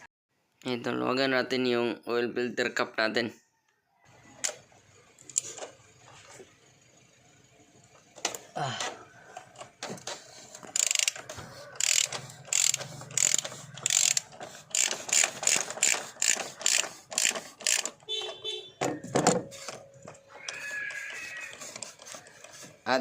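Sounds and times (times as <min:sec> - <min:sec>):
ratchet wrench clicking: 0:05.2 - 0:05.7, 0:10.6 - 0:18.4.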